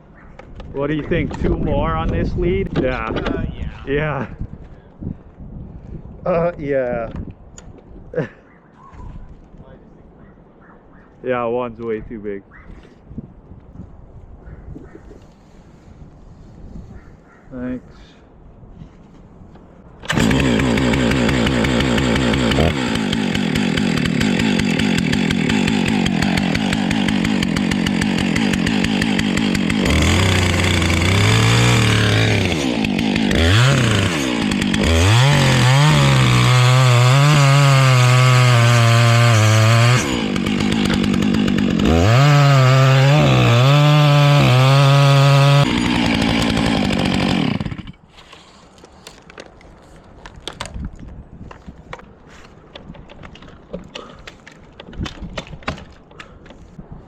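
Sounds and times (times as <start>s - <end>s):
chainsaw revving: 20.0s - 48.0s.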